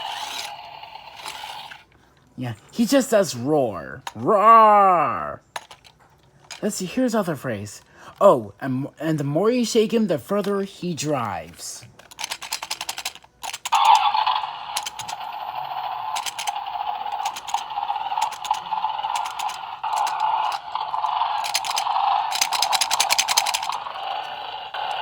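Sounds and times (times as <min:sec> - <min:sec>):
small battery motor whirring: 0:00.0 - 0:01.9, 0:13.4 - 0:25.0
toy car rattling: 0:00.0 - 0:01.9, 0:05.4 - 0:06.8, 0:11.4 - 0:25.0.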